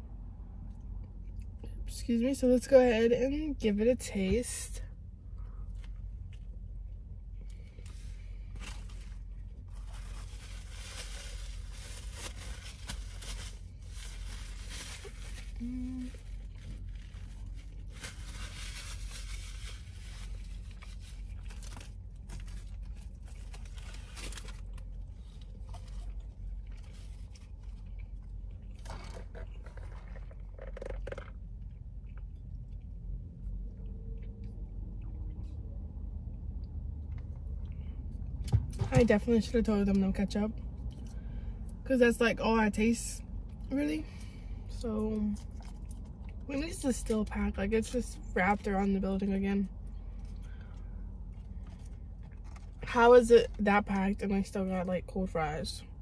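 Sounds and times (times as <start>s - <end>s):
low steady hum: 0.0s - 56.0s
chewing and crunching: 19.8s - 38.4s, 44.7s - 46.5s, 49.8s - 52.8s.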